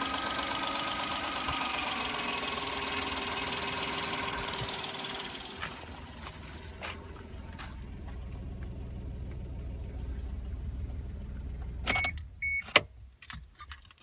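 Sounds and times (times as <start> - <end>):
car engine idling: 0.0 - 12.6
keys jangling: 13.3 - 14.0.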